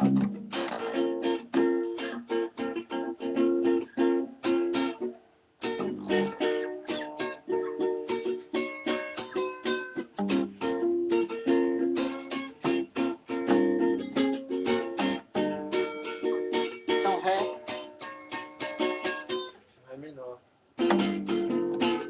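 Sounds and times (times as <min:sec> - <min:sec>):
nylon-string guitar plucking chords: 0:00.0 - 0:19.6, 0:20.8 - 0:22.0.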